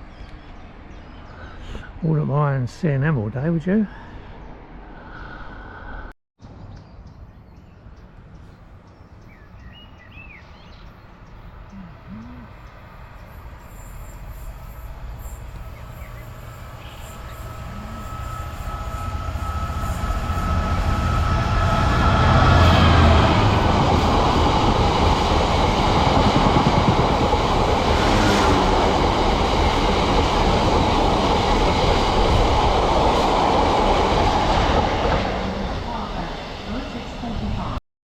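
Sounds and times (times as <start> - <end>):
diesel train engine rumble: 10.9 - 37.8
steady whine: 13.5 - 37.8.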